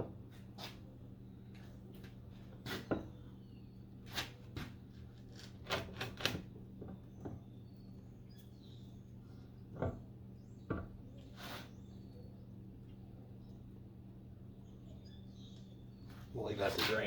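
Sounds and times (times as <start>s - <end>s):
steady low hum: 0.0s - 17.0s
faint bird chirps: 6.9s - 17.0s.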